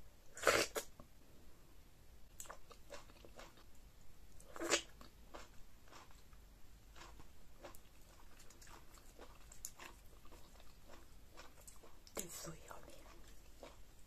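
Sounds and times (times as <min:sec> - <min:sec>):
wet chewing and lip smacks: 0:07.0 - 0:12.2.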